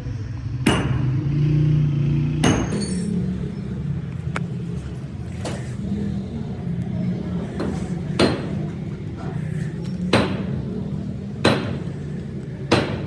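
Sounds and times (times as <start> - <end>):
engine running: 0.0 - 13.0
sharp metallic impacts: 0.6 - 1.6, 2.3 - 3.8, 7.2 - 13.0.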